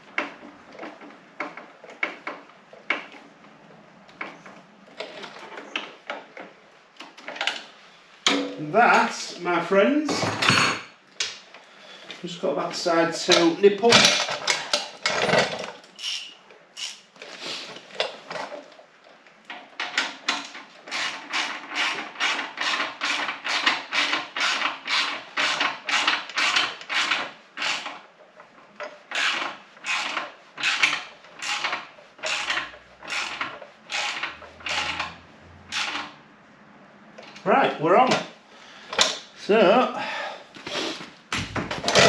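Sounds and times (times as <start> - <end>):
ratchet wrench clicking: 16.0 - 17.0.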